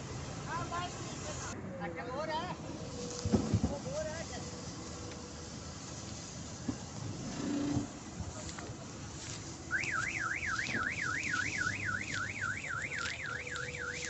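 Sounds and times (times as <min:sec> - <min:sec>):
machinery and field noise: 0:00.0 - 0:14.0
electronic warbling alarm: 0:09.7 - 0:14.0.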